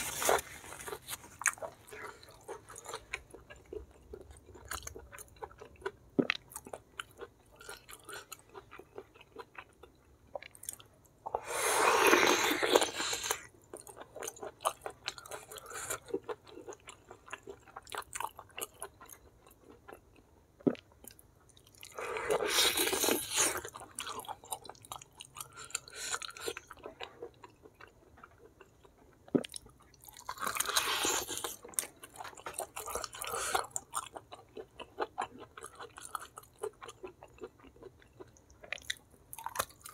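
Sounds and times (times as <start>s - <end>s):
person chewing and biting food: 0.0s - 9.8s, 21.8s - 28.4s, 29.2s - 39.9s.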